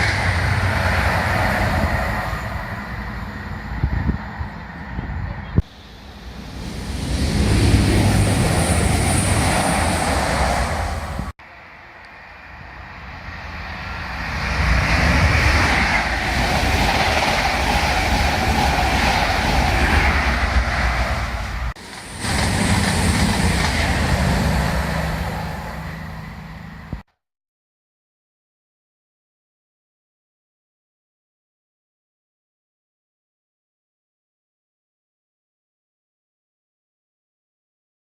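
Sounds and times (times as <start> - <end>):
train rushing through station: 0.0 - 27.1.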